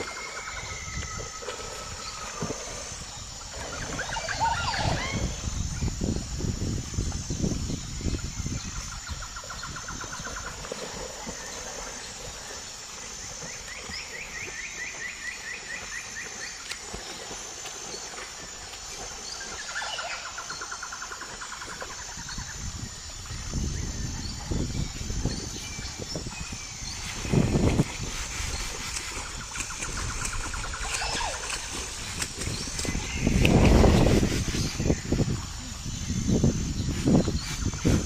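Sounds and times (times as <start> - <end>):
high evenly pulsing call: 3.9 - 5.6, 29.0 - 33.5.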